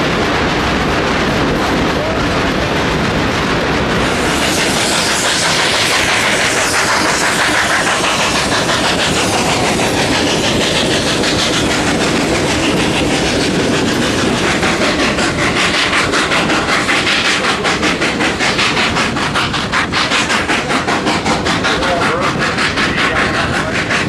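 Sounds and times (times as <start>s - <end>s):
steam train rhythmic beat: 0.0s - 24.0s
steam train rushing: 0.0s - 24.0s.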